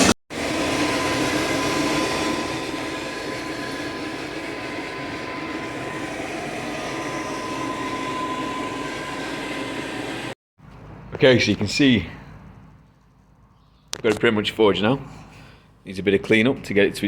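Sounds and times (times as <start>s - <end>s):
thin high whine: 0.0s - 10.4s
workshop machinery running: 0.0s - 10.4s.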